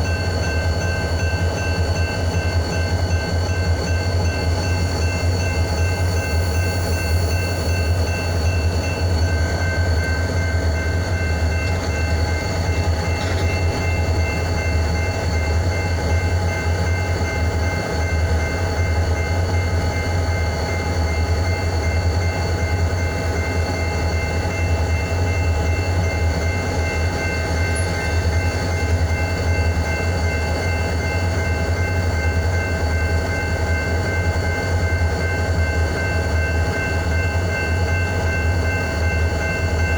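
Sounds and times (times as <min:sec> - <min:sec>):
locomotive engine drone: 0:00.0 - 0:39.9.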